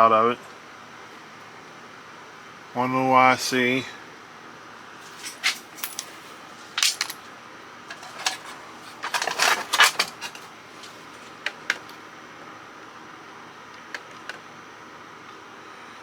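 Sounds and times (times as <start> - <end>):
scrap metal pieces clinking: 5.0 - 7.2, 7.9 - 11.0.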